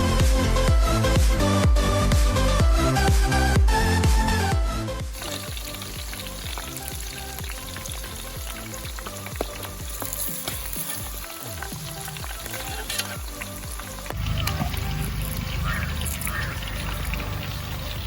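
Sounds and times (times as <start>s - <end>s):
deep-frying sizzle with crackles: 5.1s - 18.0s.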